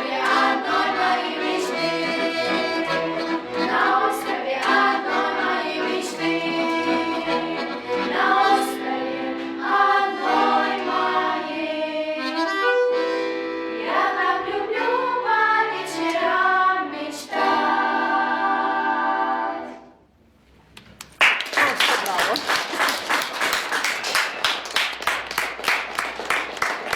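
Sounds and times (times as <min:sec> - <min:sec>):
instrumental accompaniment: 0:00.0 - 0:16.7
girls singing in harmony: 0:00.0 - 0:20.0
applause: 0:21.0 - 0:26.9.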